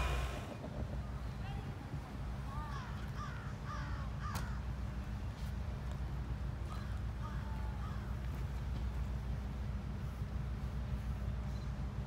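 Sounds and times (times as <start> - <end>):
bird calls sliding down in pitch: 0.0 - 0.7
steady low hum: 0.0 - 12.0.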